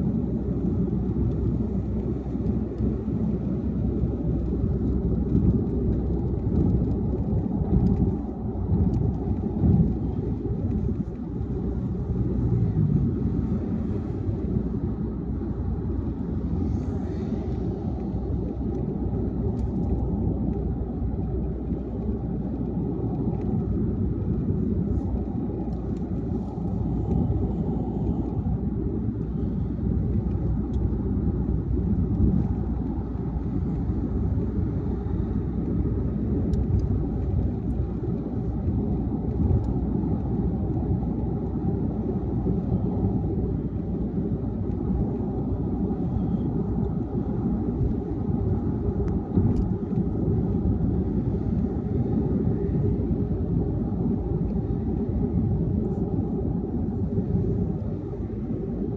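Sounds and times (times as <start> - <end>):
car cruising on highway: 0.0 - 58.9.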